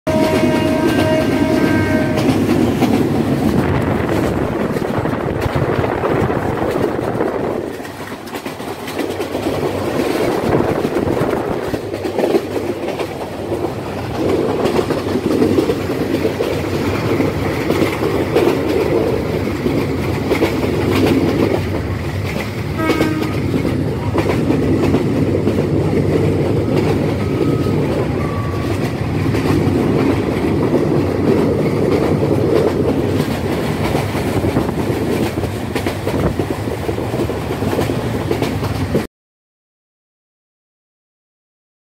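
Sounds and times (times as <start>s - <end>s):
train horn: 0.1s - 2.5s, 22.8s - 23.6s
train rumbling with clickety-clack: 0.1s - 39.1s.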